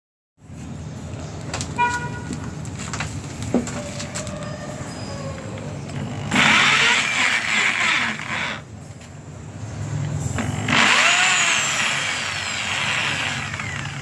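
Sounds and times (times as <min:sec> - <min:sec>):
power drill running: 0:06.1 - 0:08.6, 0:10.4 - 0:14.0.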